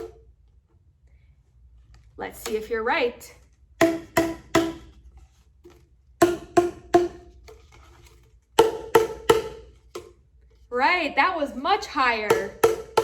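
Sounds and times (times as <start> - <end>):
plastic tubes struck hollow tones: 3.7 - 10.3, 12.1 - 13.0.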